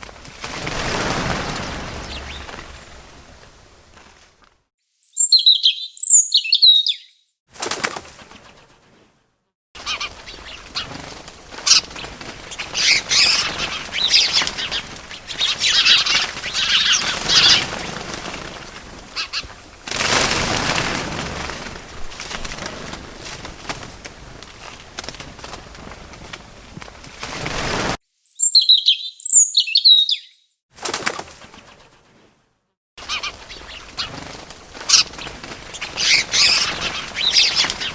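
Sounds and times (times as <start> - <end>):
bird wings flapping: 0.0 - 4.6, 7.5 - 9.2, 9.8 - 28.0, 30.8 - 32.4, 33.0 - 37.9
birds chirping: 0.4 - 4.0, 5.0 - 7.3, 28.1 - 30.5, 33.0 - 37.9.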